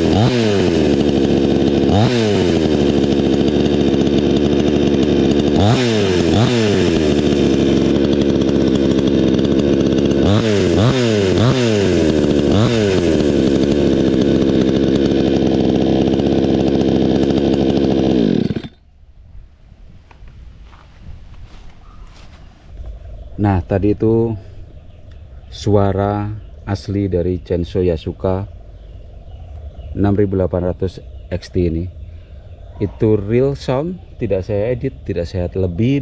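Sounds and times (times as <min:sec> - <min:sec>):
chainsaw running: 0:00.0 - 0:18.8
chainsaw throttle blips: 0:00.0 - 0:18.8.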